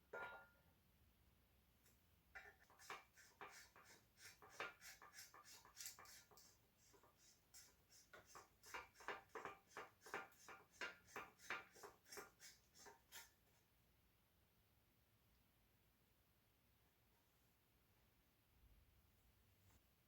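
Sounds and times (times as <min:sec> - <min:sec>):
faint clicks and scrapes: 0:02.4 - 0:13.6.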